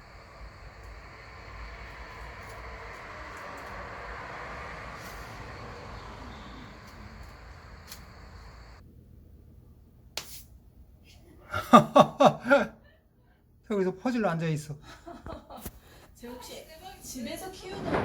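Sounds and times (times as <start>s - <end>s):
background hiss: 0.0s - 8.8s, 11.5s - 12.7s
person chuckling: 11.5s - 12.8s.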